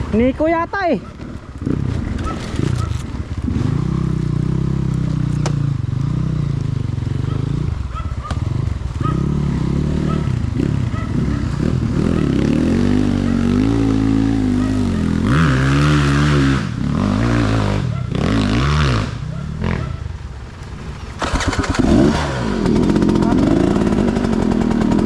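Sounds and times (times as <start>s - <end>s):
dirt bike engine revving: 1.2s - 7.8s, 8.4s - 25.0s.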